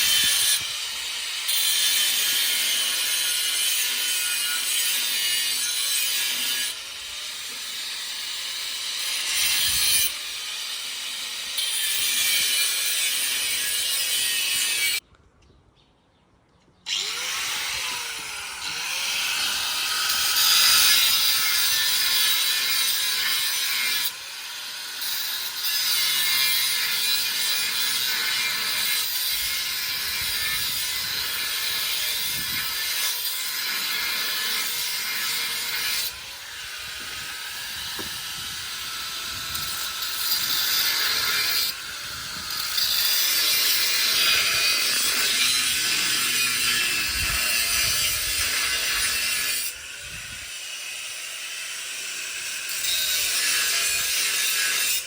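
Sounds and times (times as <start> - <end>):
hissing power tool: 16.9 - 55.0.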